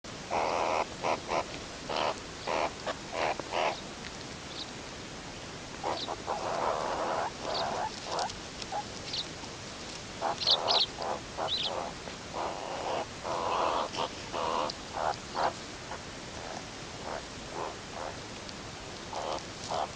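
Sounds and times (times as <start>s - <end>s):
steady background hiss: 0.1s - 19.9s
meerkats calling: 0.3s - 3.8s, 5.8s - 9.3s, 10.2s - 18.2s, 19.0s - 19.9s.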